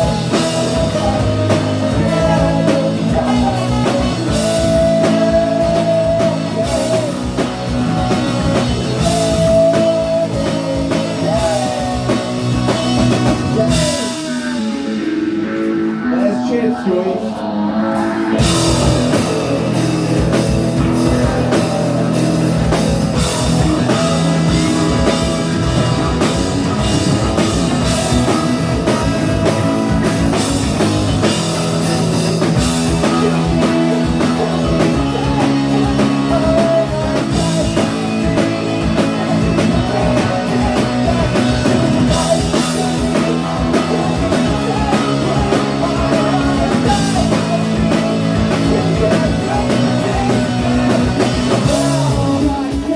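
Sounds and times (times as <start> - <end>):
ska-punk band playing: 0.0 - 52.9.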